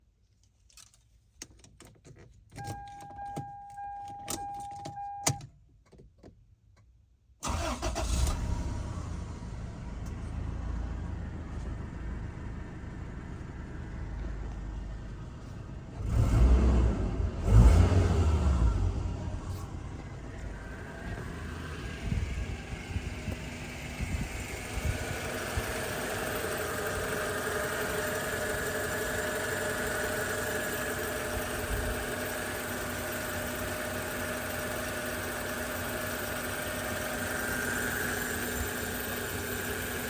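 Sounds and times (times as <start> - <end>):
engine revving: 7.4 - 11.4, 16.0 - 26.0
car engine starting and idling: 7.4 - 40.0.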